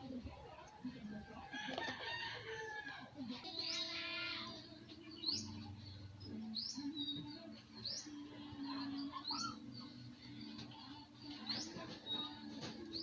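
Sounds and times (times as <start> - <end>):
small bird chirping: 3.4 - 13.0.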